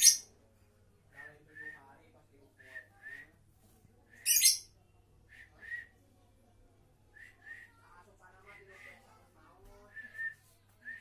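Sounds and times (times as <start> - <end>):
bird chirping: 0.0 - 0.2, 4.3 - 4.6.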